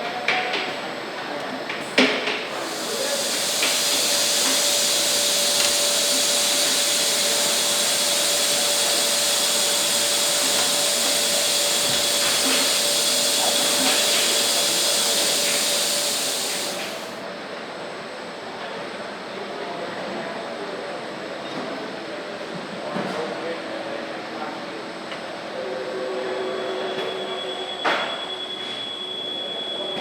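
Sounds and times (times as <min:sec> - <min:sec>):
machine hiss with thin whine: 0:02.5 - 0:17.2.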